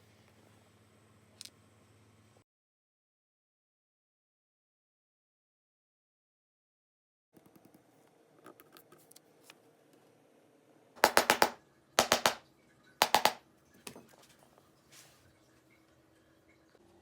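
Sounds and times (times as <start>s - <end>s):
bursts of sharp clicks: 11.0s - 12.4s, 13.0s - 13.4s.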